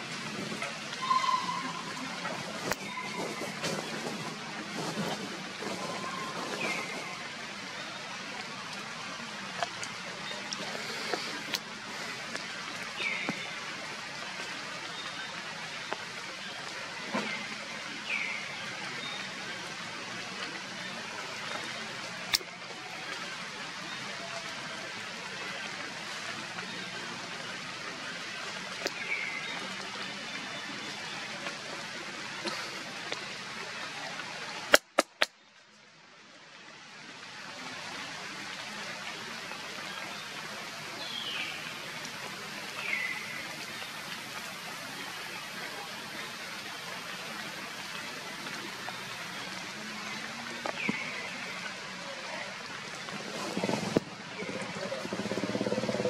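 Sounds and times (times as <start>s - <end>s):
heavy rain hissing: 0.0s - 35.3s, 36.2s - 56.0s
sharp clicks: 34.7s - 35.3s.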